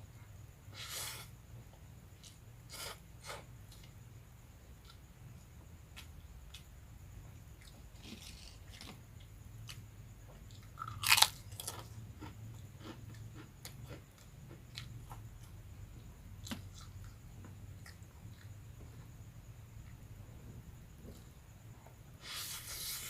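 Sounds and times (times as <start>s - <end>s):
chewing with small crunches: 7.5s - 19.2s
crispy crackers crunching: 10.8s - 11.8s.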